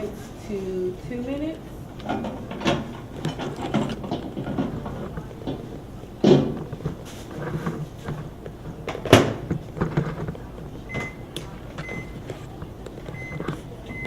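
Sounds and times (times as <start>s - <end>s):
microwave door shutting: 1.9s - 7.0s, 8.0s - 14.0s
short high keypad beeps: 10.9s - 12.2s.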